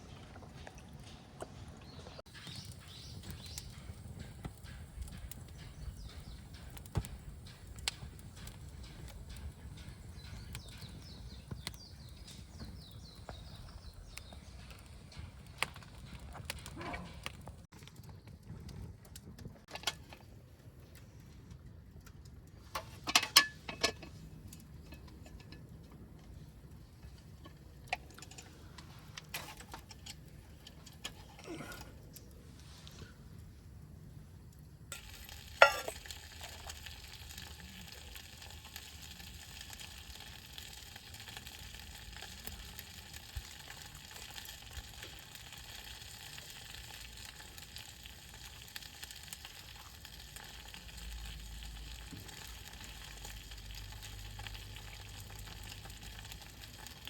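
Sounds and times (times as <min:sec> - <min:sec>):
food sizzling in a hot pan: 0:34.9 - 0:57.0.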